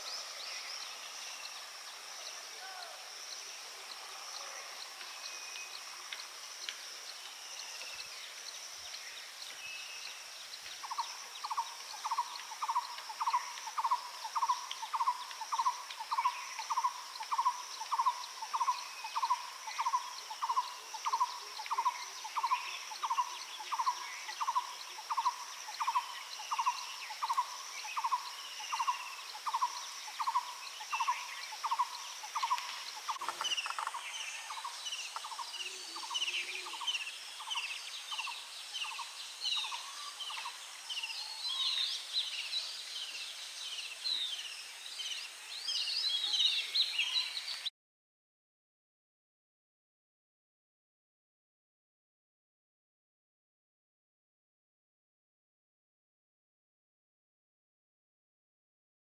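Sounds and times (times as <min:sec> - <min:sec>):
faint calls of other birds: 0:00.0 - 0:47.7
high-pitched insect drone: 0:10.8 - 0:42.5.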